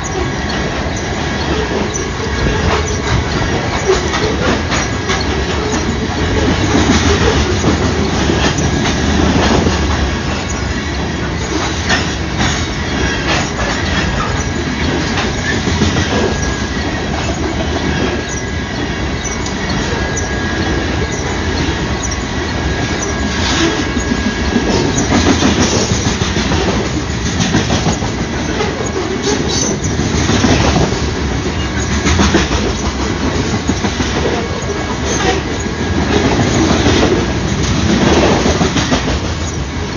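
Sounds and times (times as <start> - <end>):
high wheel squeal: 0.0 - 27.1, 27.8 - 30.9
train wheels rumbling on rail: 0.0 - 39.9.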